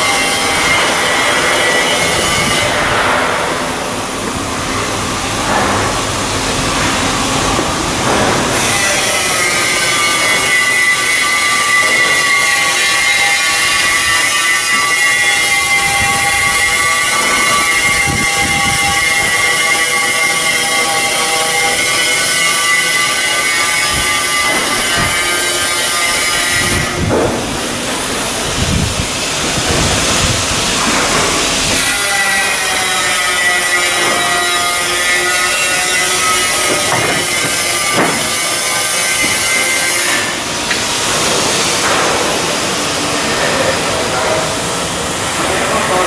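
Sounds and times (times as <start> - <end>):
machinery whining: 0.0 - 46.0
knocks: 36.6 - 38.4.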